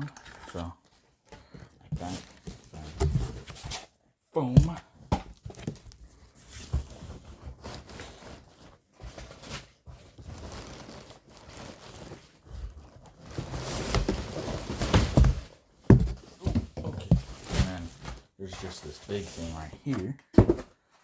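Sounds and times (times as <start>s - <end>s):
packaging rustling: 5.3s - 19.7s.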